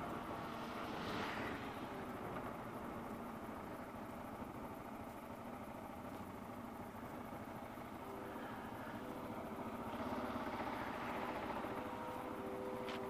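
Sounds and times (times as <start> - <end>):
motorcycle engine running: 0.0 - 13.0
steady tone: 6.6 - 13.0.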